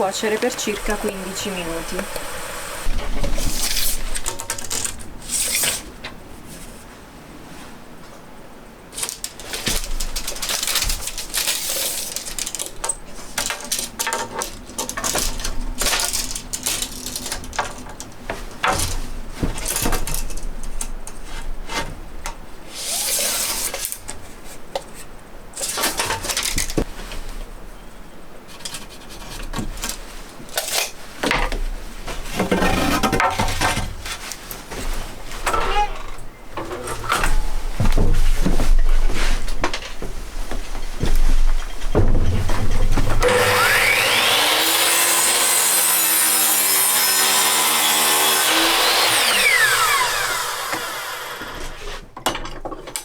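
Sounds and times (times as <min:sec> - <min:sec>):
scraping and rustling: 0:28.5 - 0:43.5.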